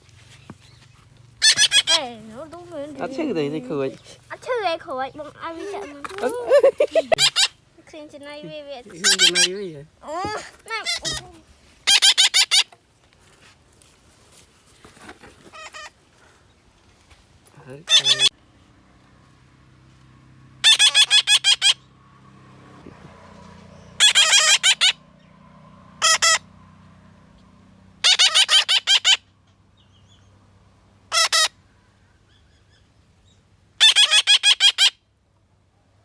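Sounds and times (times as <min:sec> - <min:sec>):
bird calling harsh repeated notes: 0:01.4 - 0:07.6, 0:08.8 - 0:12.8, 0:15.5 - 0:16.0, 0:17.8 - 0:18.4, 0:20.6 - 0:21.9, 0:23.8 - 0:25.1, 0:26.0 - 0:26.5, 0:28.0 - 0:29.3, 0:31.1 - 0:31.6, 0:33.8 - 0:35.1.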